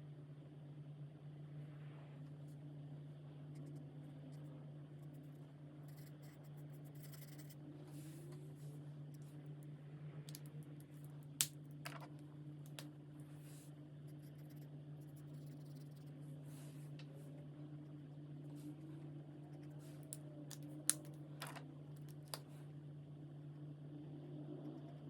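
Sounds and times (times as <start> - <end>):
steady low hum: 0.0 - 25.0
markers scratching on paper: 5.9 - 7.6, 14.1 - 16.1.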